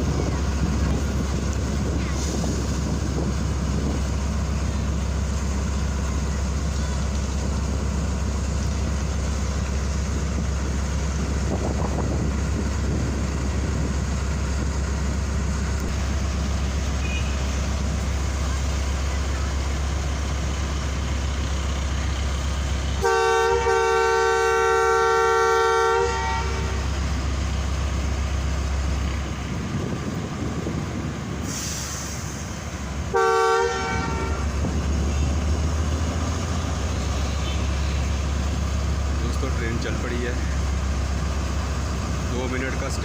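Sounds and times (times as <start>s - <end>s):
low locomotive rumble: 0.0s - 43.0s
locomotive horn blasts: 16.9s - 17.6s, 23.0s - 27.0s, 33.1s - 34.7s.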